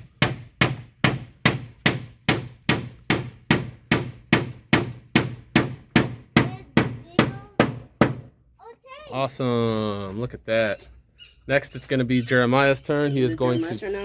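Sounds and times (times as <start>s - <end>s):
hammer driving nails into wood: 0.2s - 6.2s.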